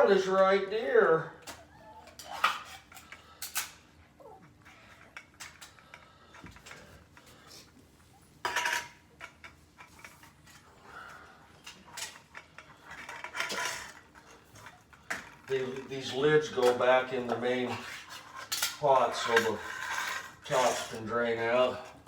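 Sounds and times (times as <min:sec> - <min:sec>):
metal cans clinking and scraping: 0:11.7 - 0:22.0.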